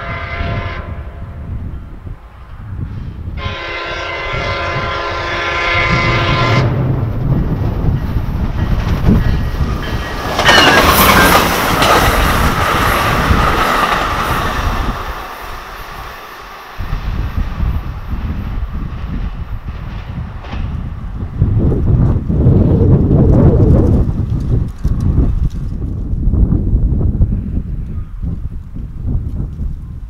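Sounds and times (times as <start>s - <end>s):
train horn: 0.0s - 1.5s, 3.4s - 6.9s
train passing on rails: 0.0s - 30.0s.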